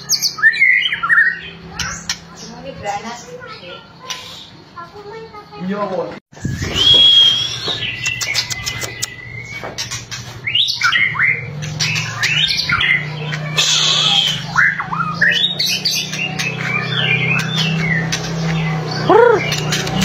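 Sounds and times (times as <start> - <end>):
bird singing high whistles: 6.4 - 9.7, 13.6 - 18.0
rapid crackling bird clicks: 8.0 - 9.2.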